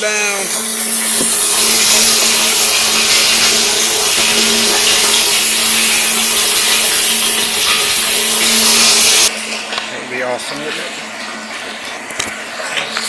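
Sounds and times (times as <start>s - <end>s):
motor hum with rushing hiss: 0.0s - 9.4s.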